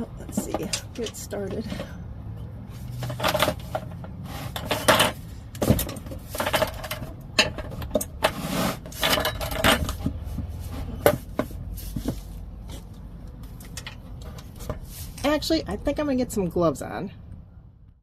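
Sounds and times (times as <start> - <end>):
metallic scraping: 2.6 - 12.9.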